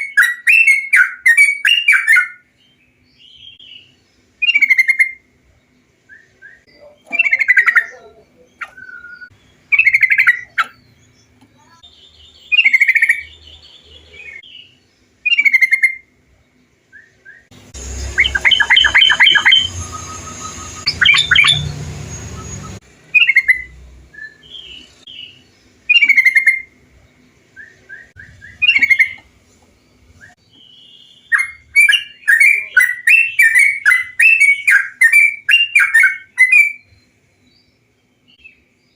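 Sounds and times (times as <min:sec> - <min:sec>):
bulbul song: 0:00.0 - 0:38.9.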